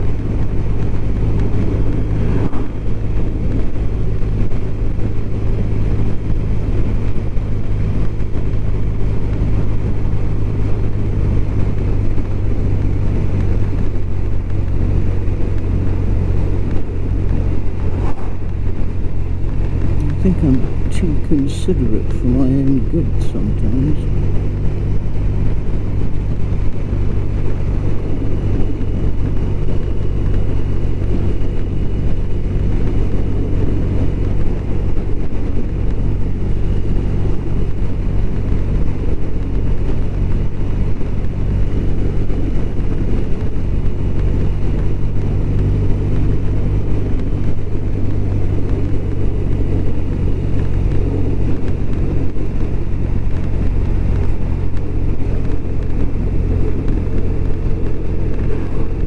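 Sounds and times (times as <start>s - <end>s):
motorcycle engine cruising: 0.0s - 59.0s
wind and road noise: 0.0s - 59.0s.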